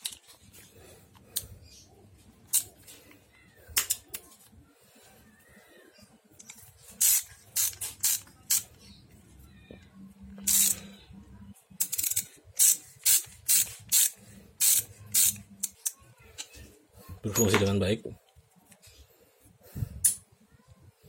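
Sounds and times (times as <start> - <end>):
metal socket parts clicking: 6.4 - 8.7, 10.4 - 10.9, 11.8 - 16.5.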